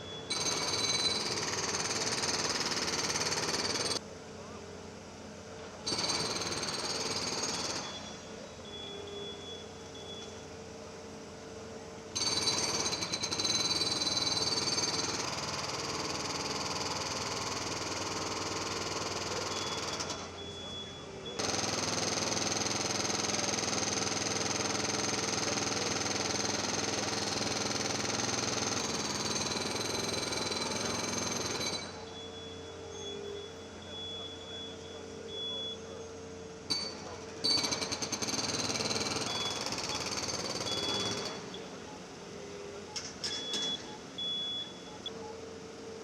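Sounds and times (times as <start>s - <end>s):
jackhammer hammering pavement: 0.3s - 4.0s, 5.8s - 8.0s, 12.2s - 20.3s, 21.4s - 32.0s, 36.7s - 41.4s.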